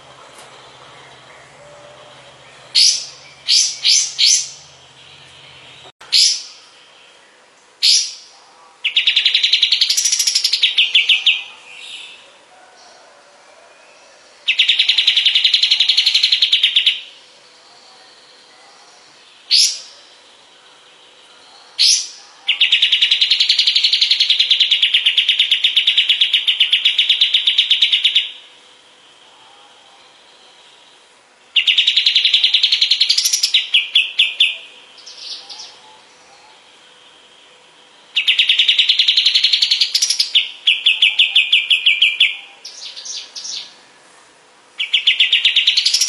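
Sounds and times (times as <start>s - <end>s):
bird singing rapid trills: 0.0s - 12.2s, 13.8s - 43.9s, 44.8s - 46.0s.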